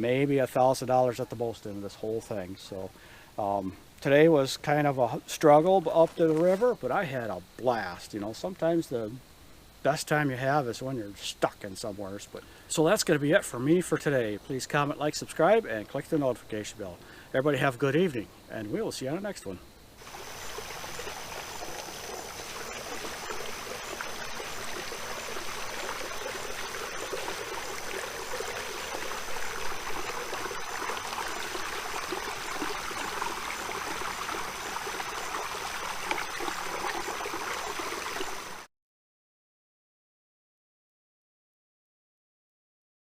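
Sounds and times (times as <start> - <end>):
running water gurgling: 10.3 - 38.7.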